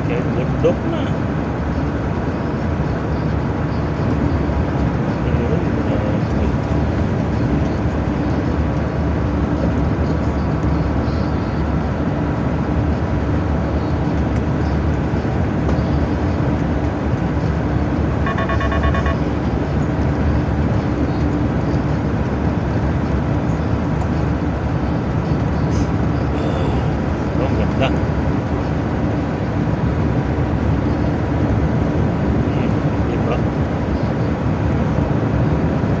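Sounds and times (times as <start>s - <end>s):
heavy truck engine drone: 0.0s - 36.0s
road noise: 0.0s - 36.0s
rapid electronic beeping: 18.2s - 19.7s.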